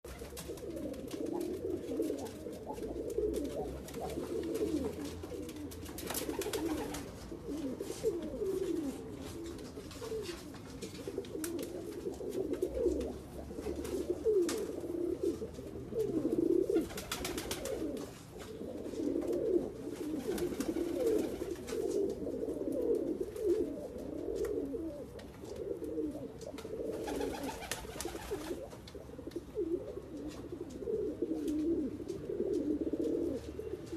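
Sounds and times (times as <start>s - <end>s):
pigeons cooing: 0.1s - 33.9s.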